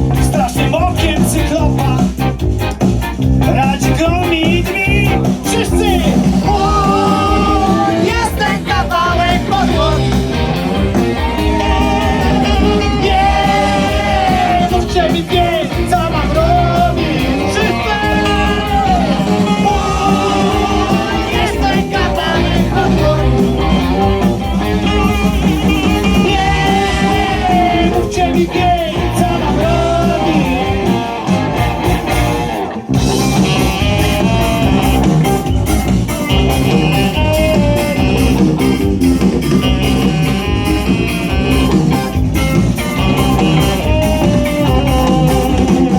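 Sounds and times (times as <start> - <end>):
bass guitar: 0.0 - 45.9
drums: 0.0 - 45.9
electric guitar: 0.0 - 45.9
person singing: 3.5 - 31.8, 42.8 - 45.9.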